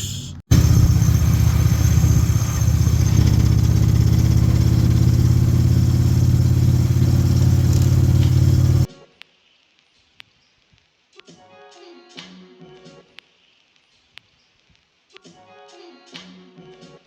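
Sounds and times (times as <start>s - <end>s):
motorcycle engine running steadily: 0.5s - 8.9s.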